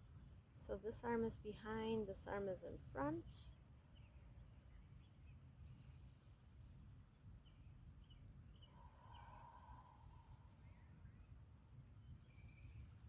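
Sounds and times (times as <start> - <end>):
low steady background rumble: 0.0 - 13.0
faint bird chirps: 3.9 - 13.0.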